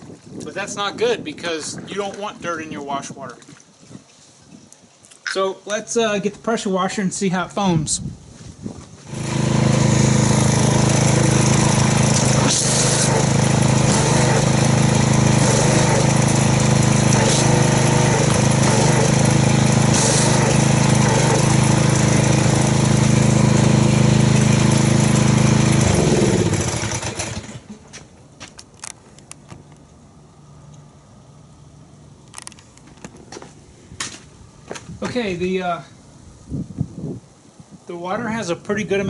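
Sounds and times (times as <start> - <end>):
pressure washer motor: 9.0 - 27.8
water spray hissing: 9.9 - 22.7.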